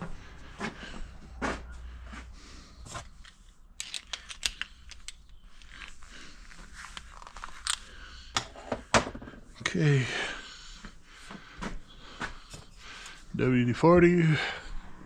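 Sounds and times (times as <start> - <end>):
clicks of small metal fittings: 3.0 - 6.0.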